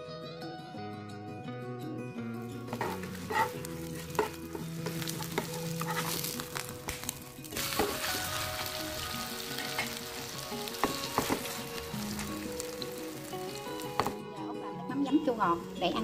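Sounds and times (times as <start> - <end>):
oil sizzling in a pan: 2.6 - 14.3.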